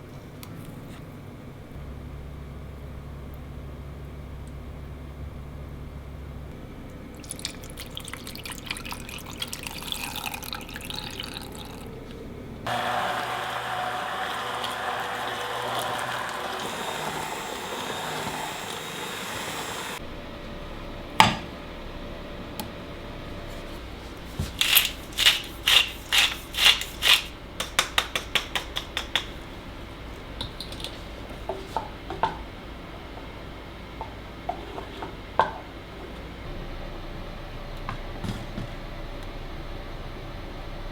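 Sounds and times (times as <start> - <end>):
kitchen tap running: 12.7 - 20.0
rapid sharp taps: 27.6 - 29.4.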